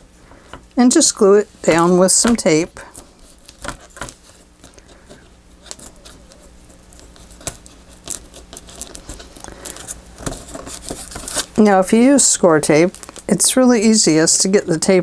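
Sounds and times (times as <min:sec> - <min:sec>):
paper and tape being handled: 0:01.5 - 0:13.4.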